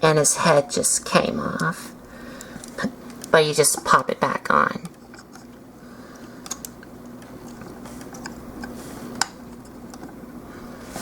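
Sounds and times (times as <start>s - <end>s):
faint steady hum: 0.0s - 11.0s
plastic parts clicking: 6.2s - 10.2s.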